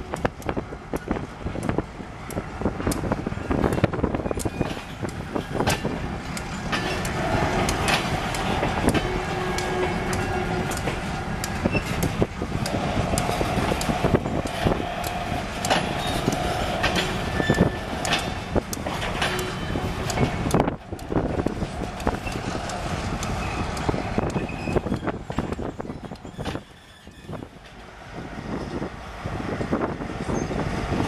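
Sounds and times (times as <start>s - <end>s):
freight cars rolling past: 0.0s - 31.0s
wheels clicking over rail joints: 0.1s - 28.0s
ringing tone from wheels: 15.9s - 18.4s.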